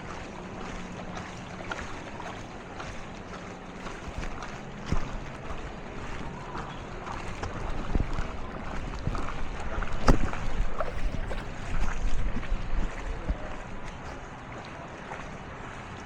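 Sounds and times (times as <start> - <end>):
water churning: 0.0 - 16.0
sharp splashes or knocks: 3.9 - 14.2
wind on microphone: 4.0 - 14.3.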